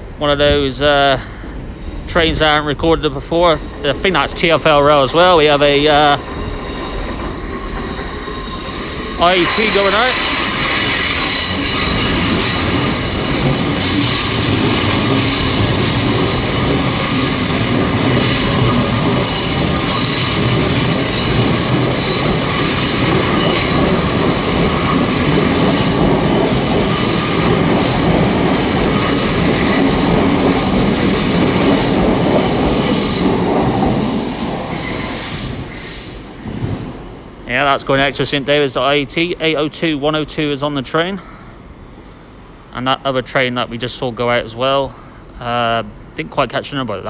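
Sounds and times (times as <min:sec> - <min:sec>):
train rumbling on rails: 0:00.0 - 0:47.0
train wheels squealing: 0:03.0 - 0:37.0.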